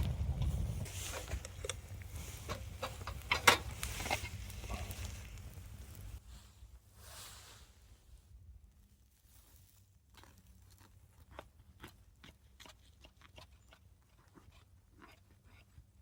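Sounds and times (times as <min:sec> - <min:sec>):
crunching toasted sandwich: 0:09.4 - 0:12.0.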